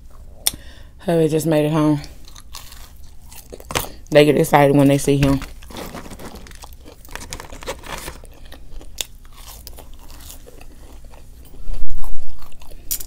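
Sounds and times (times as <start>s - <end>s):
chewing and crunching food: 2.0s - 4.1s, 5.2s - 13.0s.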